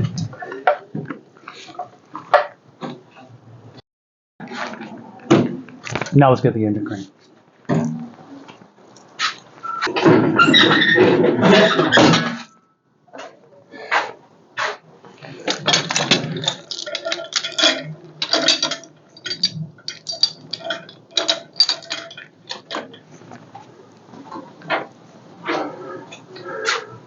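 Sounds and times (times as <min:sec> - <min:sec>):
metal clinks and clanks: 0:15.4 - 0:23.6.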